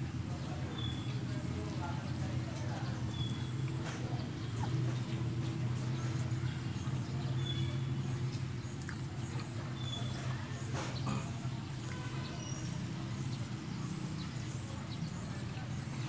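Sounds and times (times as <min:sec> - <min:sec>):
chewing and lip-smacking: 0:08.2 - 0:11.0.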